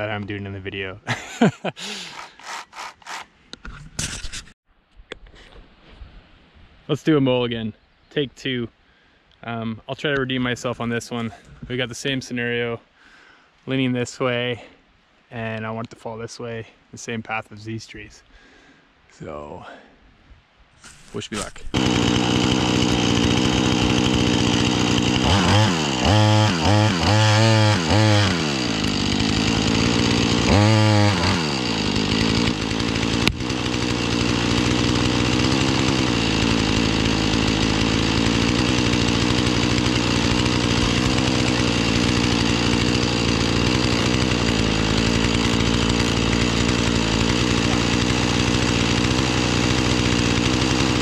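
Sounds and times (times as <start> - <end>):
chainsaw revving and cutting: 1.1 - 3.3, 20.9 - 51.0.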